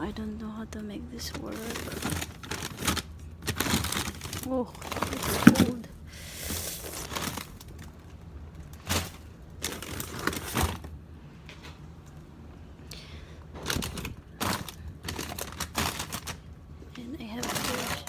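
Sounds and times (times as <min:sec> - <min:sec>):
frozen items knocking together: 0:01.2 - 0:08.1, 0:08.7 - 0:11.0, 0:13.6 - 0:16.4, 0:17.3 - 0:18.0
plastic bags crinkling: 0:01.2 - 0:11.0, 0:13.5 - 0:16.5, 0:17.2 - 0:18.0.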